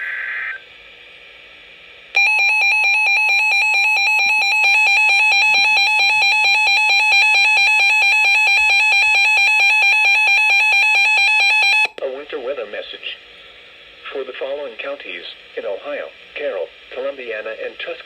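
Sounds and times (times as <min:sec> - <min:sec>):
two-pitch electronic alarm tone: 0:02.2 - 0:11.9.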